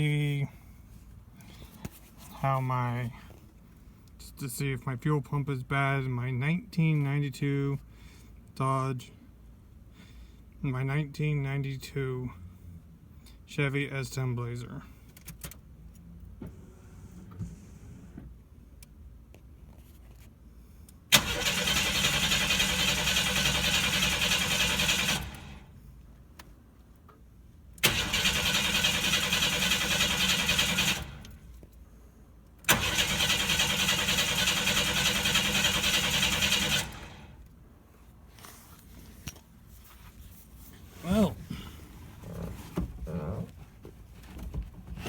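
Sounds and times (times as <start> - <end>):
starter cranking engine: 21.1 - 25.7, 27.8 - 31.4, 32.7 - 37.4.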